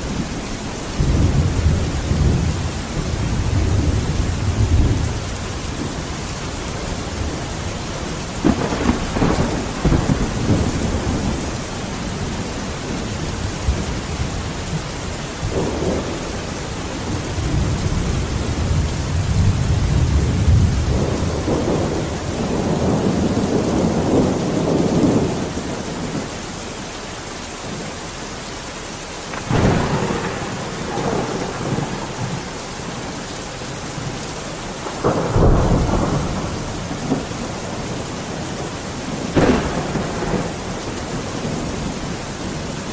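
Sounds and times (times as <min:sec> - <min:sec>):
heavy rain: 0:00.0 - 0:42.9
rolling thunder: 0:00.1 - 0:26.3, 0:29.3 - 0:42.9
sharp thunder cracks: 0:08.4 - 0:12.3, 0:29.3 - 0:34.1, 0:34.8 - 0:42.0.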